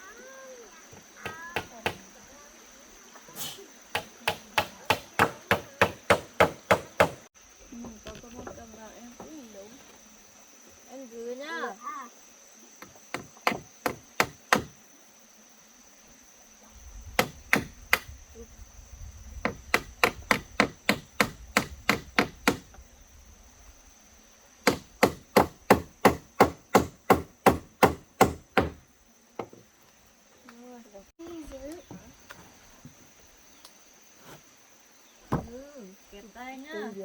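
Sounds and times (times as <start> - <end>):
high insect chirr: 0.0 - 37.0
hammer driving nails into wood: 4.0 - 7.2, 13.1 - 14.7, 19.8 - 22.6, 24.7 - 28.8.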